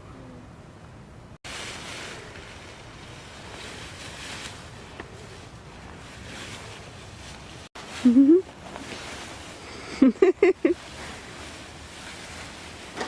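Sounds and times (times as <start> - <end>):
dry leaves rustling and crunching: 1.4 - 13.0.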